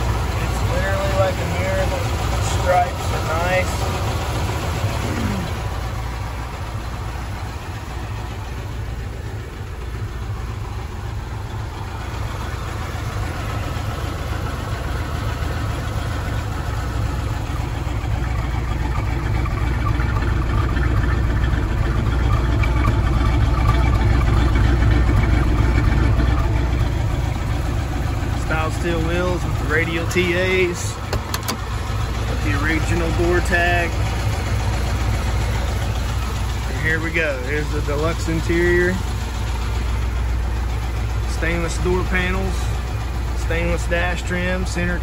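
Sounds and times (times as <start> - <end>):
car engine idling: 0.0 - 45.0.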